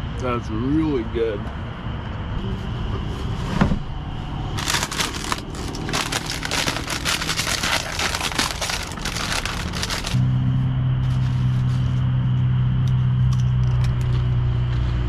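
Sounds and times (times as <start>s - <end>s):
packaging crinkling: 4.6s - 10.2s.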